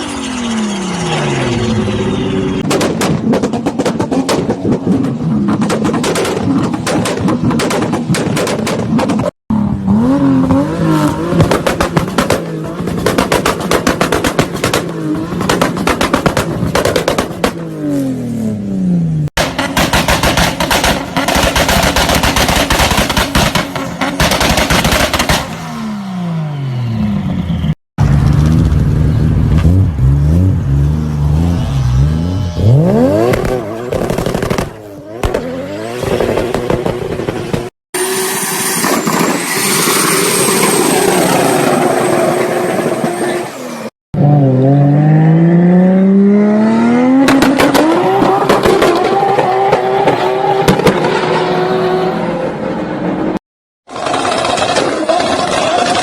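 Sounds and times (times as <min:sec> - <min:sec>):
exhaust bangs and pops: 0:02.6 - 0:09.3, 0:10.4 - 0:17.7, 0:19.4 - 0:25.7, 0:32.6 - 0:37.7, 0:47.2 - 0:51.4, 0:53.8 - 0:56.0
car engine revving: 0:18.8 - 0:56.0.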